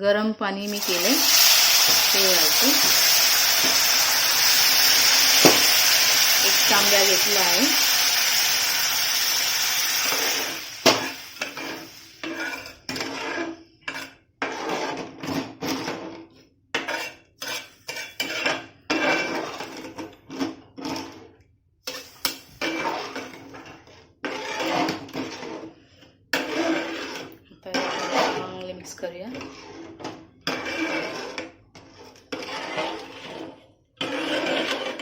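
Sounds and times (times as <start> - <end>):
water sizzling in hot pan: 0.6 - 12.7
metal spoon scraping pot: 0.6 - 16.2, 16.8 - 21.2, 21.9 - 35.0.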